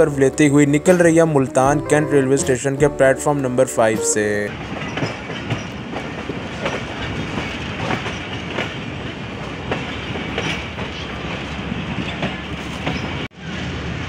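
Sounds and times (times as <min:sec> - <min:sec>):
train running rumble: 0:04.5 - 0:14.0
wheels clicking over rail joints: 0:04.6 - 0:13.3.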